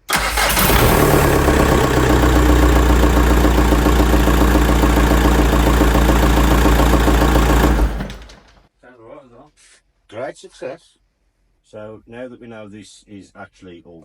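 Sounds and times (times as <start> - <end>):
diesel engine starting and idling: 0.0 - 8.5.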